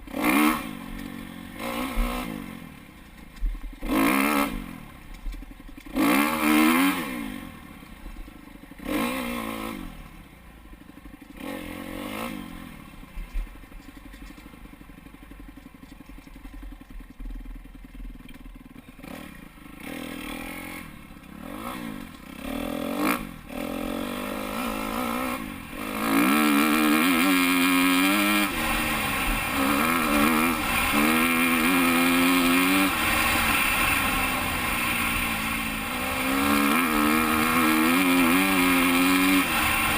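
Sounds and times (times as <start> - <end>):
dirt bike engine revving: 0.0 - 2.8, 3.8 - 5.0, 5.8 - 8.0, 8.7 - 13.2, 18.8 - 39.9.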